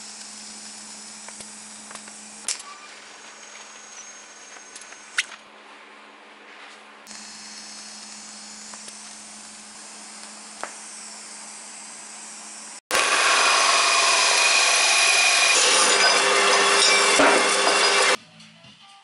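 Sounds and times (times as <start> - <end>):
welding arc hissing: 0.0 - 2.5, 7.1 - 12.8
bandsaw cutting steel: 0.0 - 5.2, 7.1 - 18.2
high-pitched regulator whine: 0.0 - 5.2, 7.1 - 12.8.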